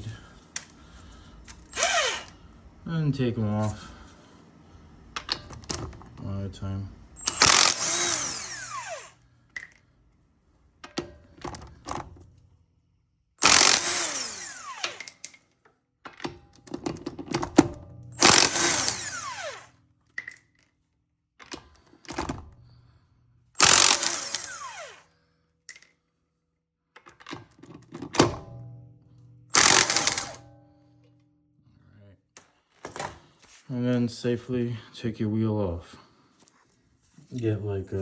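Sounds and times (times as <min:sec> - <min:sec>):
power tool spinning lug nuts: 0:01.5 - 0:02.4, 0:07.2 - 0:09.2, 0:13.4 - 0:15.3, 0:18.1 - 0:19.8, 0:23.6 - 0:25.1, 0:29.5 - 0:30.4
motor winding down whine: 0:01.6 - 0:02.4, 0:07.2 - 0:09.2, 0:13.4 - 0:15.1, 0:18.2 - 0:19.7, 0:23.6 - 0:25.0, 0:29.5 - 0:30.4
nuts and socket clinking: 0:07.2 - 0:08.7, 0:29.5 - 0:30.4.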